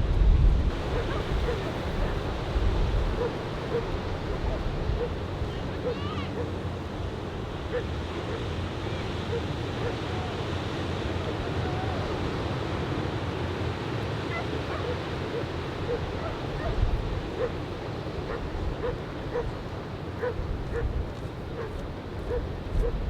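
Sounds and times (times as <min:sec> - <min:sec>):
surf rumble: 0:00.0 - 0:23.0
wind: 0:00.0 - 0:23.0
dog barking: 0:00.8 - 0:02.4, 0:03.1 - 0:05.2, 0:05.8 - 0:06.6, 0:07.7 - 0:08.5, 0:09.2 - 0:10.1, 0:14.2 - 0:19.6, 0:20.2 - 0:21.0, 0:21.6 - 0:23.0.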